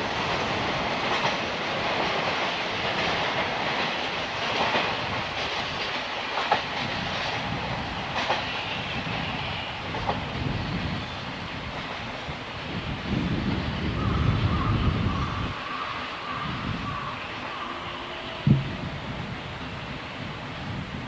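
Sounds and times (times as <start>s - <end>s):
train wheels clacking on rails: 0.0s - 20.0s.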